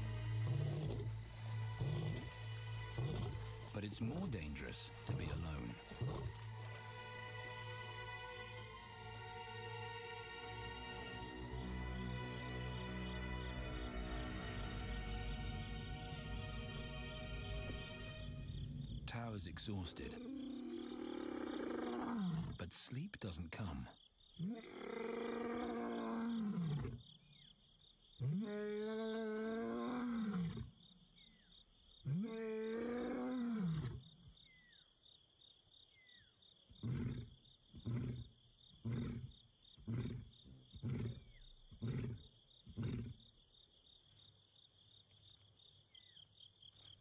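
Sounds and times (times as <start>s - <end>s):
crickets trilling: 0.0s - 28.2s, 30.4s - 32.1s, 33.2s - 47.0s
lion roaring: 20.1s - 22.6s, 24.4s - 27.0s, 28.2s - 30.7s, 32.1s - 34.1s, 36.8s - 39.3s, 39.9s - 43.2s
lion grunts: 36.8s - 43.2s.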